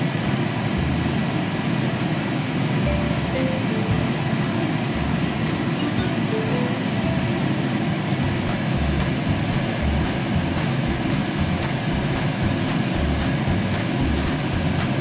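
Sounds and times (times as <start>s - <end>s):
low rumbling noise: 2.9s - 6.1s, 7.0s - 14.8s.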